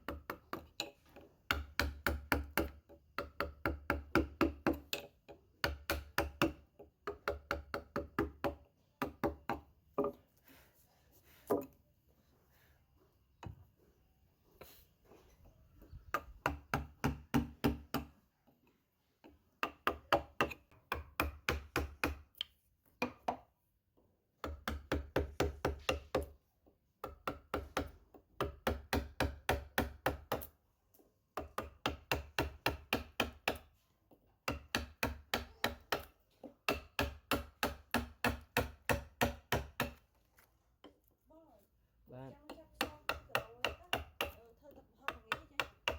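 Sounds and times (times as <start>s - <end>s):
mallet tapping chisel into wood: 0.0s - 10.2s, 16.1s - 18.1s, 19.2s - 23.5s, 24.4s - 26.3s, 27.0s - 30.5s, 34.4s - 40.0s, 42.5s - 44.4s, 45.1s - 45.9s.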